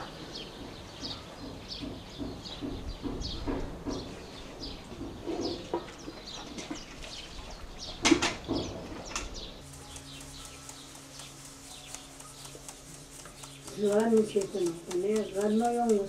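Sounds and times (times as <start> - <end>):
small birds chirping: 0.0 - 16.0
steady low hum: 8.8 - 16.0.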